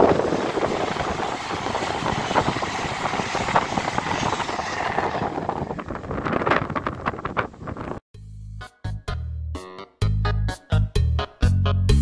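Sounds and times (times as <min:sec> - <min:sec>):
high-speed train passing: 0:00.0 - 0:08.0.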